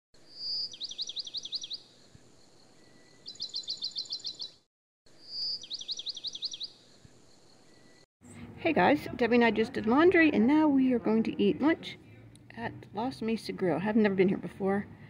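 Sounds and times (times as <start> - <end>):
high-pitched bird chirps: 0.3 - 1.8, 3.2 - 4.6, 5.2 - 6.8
long held bird whistle: 2.9 - 4.6, 5.2 - 6.8.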